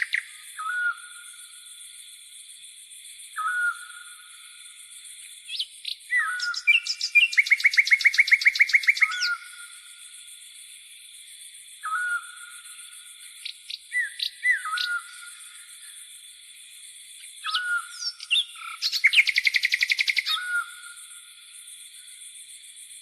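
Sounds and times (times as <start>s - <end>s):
insect chirring: 0.0s - 23.0s
fast bird trill: 5.5s - 9.4s, 17.5s - 20.6s
birds calling: 5.5s - 9.6s, 13.4s - 15.3s, 17.4s - 20.7s.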